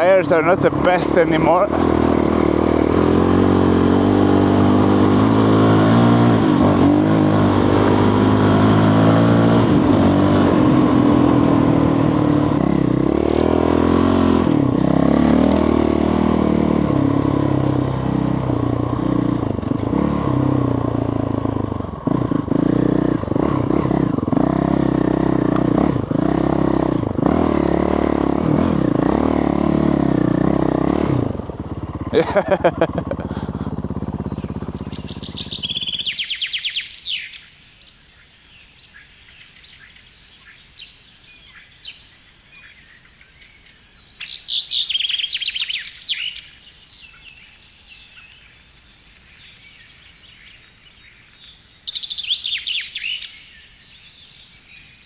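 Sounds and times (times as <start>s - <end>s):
motorcycle engine revving: 0.0s - 37.2s.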